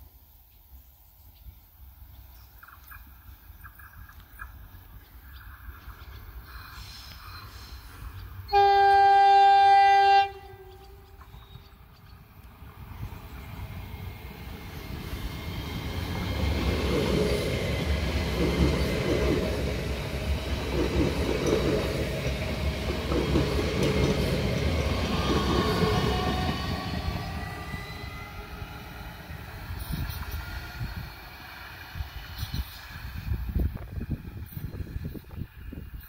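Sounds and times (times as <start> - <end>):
train rumble with wheel clatter: 1.2 - 36.0.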